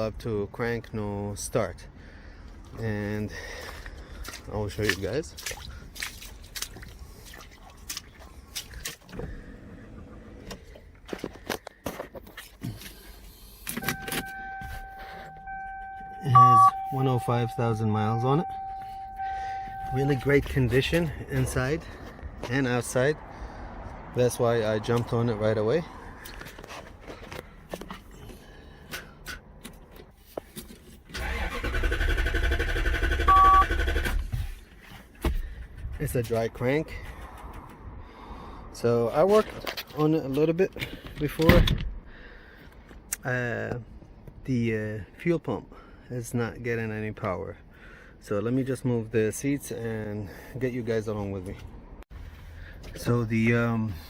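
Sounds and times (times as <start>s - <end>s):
electronic tone: 13.8s - 20.4s
starter cranking engine: 31.1s - 34.3s.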